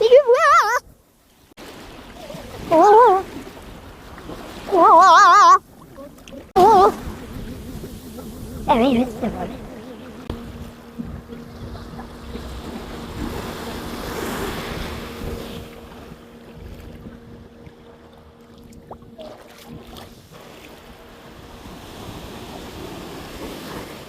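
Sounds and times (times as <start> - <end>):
waves washing on sandy beach: 1.6 - 16.8, 19.2 - 24.0
faint steady hum: 4.8 - 23.8
wind buffeting microphone: 5.6 - 24.0.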